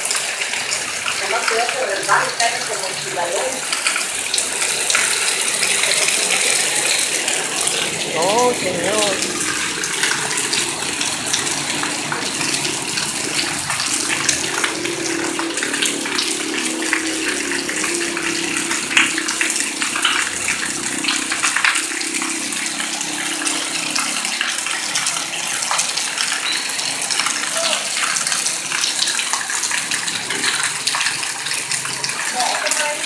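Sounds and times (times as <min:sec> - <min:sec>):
heavy rain pouring: 0:00.0 - 0:33.0
water running: 0:00.0 - 0:33.0.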